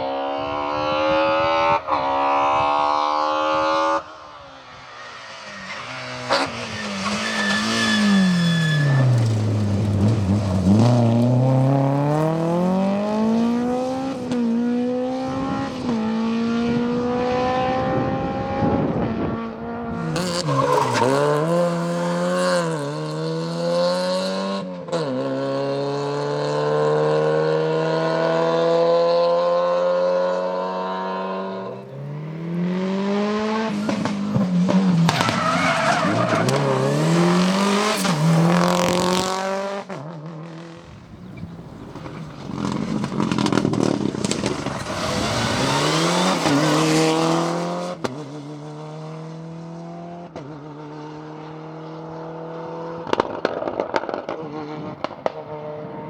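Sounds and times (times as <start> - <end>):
rally car engines at full throttle: 0.0 - 56.0
tyres squealing: 4.9 - 10.7, 20.0 - 22.1, 33.8 - 38.3.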